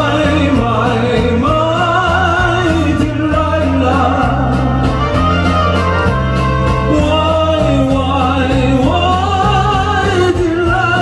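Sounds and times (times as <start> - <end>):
person singing with vibrato: 0.0 - 5.3, 6.7 - 11.0
amplified backing track with beat: 0.0 - 11.0.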